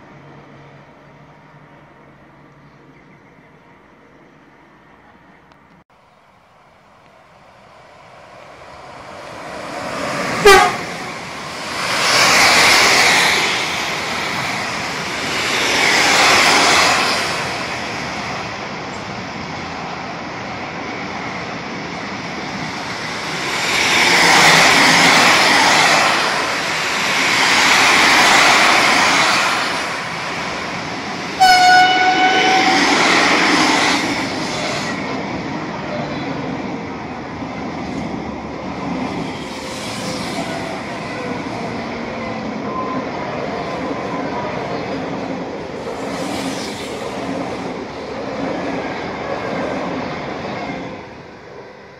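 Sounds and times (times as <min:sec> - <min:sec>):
train wheels rumbling on rails: 0:07.1 - 0:51.5
train horn: 0:10.4 - 0:11.1, 0:31.4 - 0:33.0
loud train horn blast: 0:10.4 - 0:11.2, 0:31.4 - 0:33.0.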